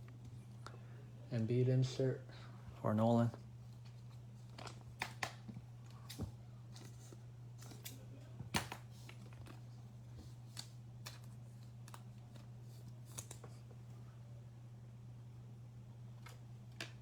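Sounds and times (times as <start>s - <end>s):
low electrical hum: 0.0s - 17.0s
cards clicking and tapping: 4.5s - 7.0s, 7.6s - 9.6s.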